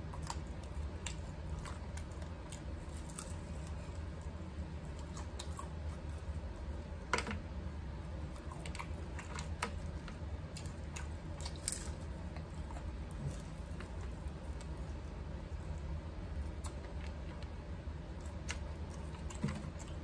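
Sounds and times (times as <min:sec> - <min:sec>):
small crunches: 0:00.0 - 0:04.2.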